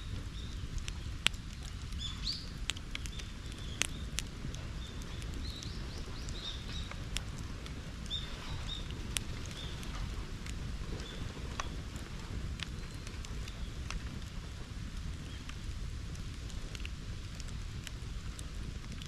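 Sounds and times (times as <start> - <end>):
bonfire rumble: 0.0 - 19.0
fire pops and crackles: 0.0 - 19.0
small birds chirping: 0.2 - 7.3, 8.0 - 10.1.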